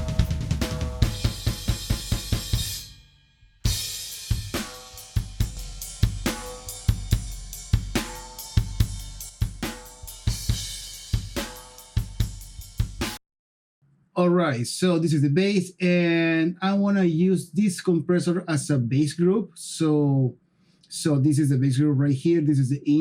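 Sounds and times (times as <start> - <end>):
drum kit groove: 0.0 - 3.0, 3.6 - 13.2.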